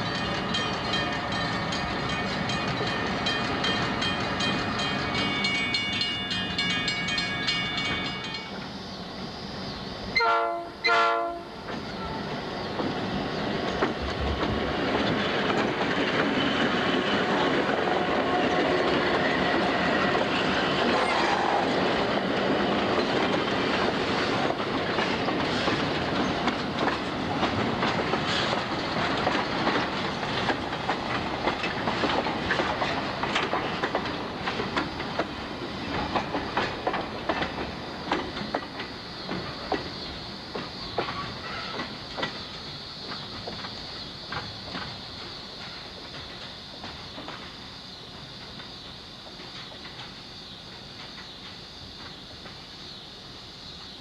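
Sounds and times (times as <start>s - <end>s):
rail clicks: 0.0s - 8.7s, 10.2s - 54.0s
train rumbling past: 0.0s - 54.0s
locomotive horn: 10.2s - 12.3s.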